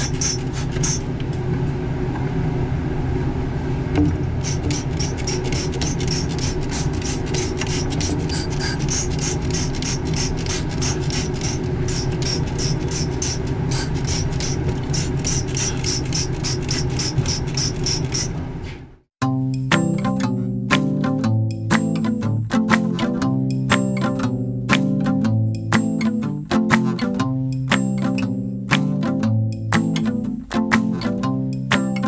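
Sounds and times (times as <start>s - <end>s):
brush scrubbing metal coil: 0.0s - 1.0s, 4.4s - 18.3s.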